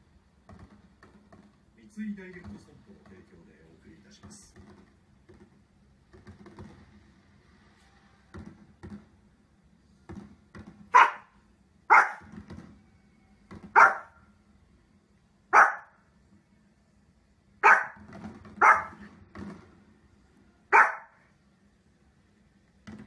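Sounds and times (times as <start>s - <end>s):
small dog barking: 10.9s - 12.3s, 13.7s - 14.2s, 15.5s - 16.0s, 17.6s - 18.0s, 18.6s - 19.0s, 20.7s - 21.2s.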